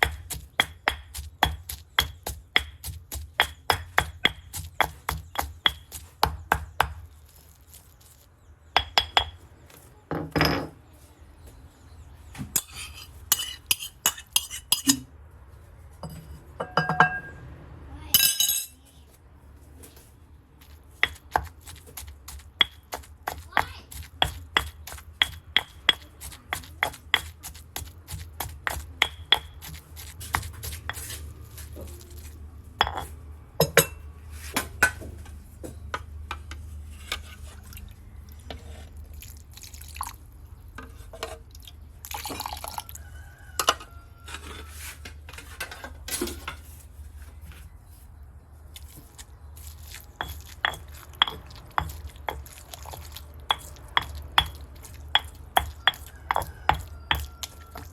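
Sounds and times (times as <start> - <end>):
dishes and utensils clinking: 12.5 - 15.1, 16.0 - 17.4, 18.2 - 18.8, 32.8 - 34.1
small liquid sounds: 37.5 - 40.8, 48.8 - 55.1.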